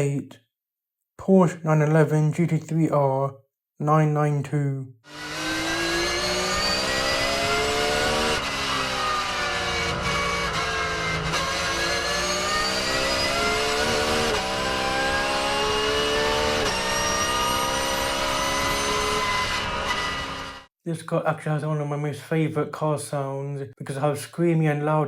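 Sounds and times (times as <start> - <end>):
race car engine at full throttle: 5.1 - 20.7.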